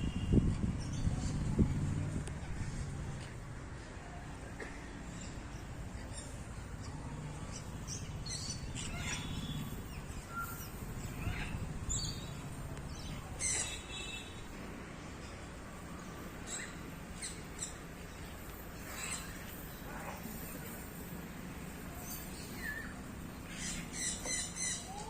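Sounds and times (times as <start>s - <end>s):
birds chirping and calling: 5.0s - 20.9s, 21.6s - 25.0s.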